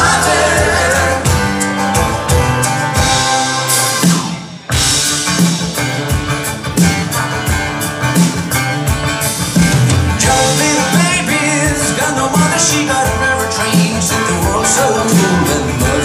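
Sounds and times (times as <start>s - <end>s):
person singing: 0.0s - 1.6s, 10.2s - 16.0s
live rock band playing: 0.0s - 16.0s.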